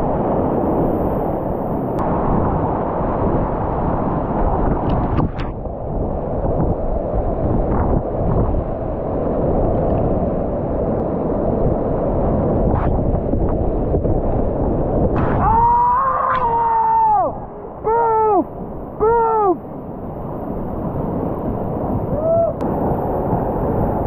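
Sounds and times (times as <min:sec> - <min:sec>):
person yelling: 0:15.4 - 0:19.6, 0:22.2 - 0:22.6.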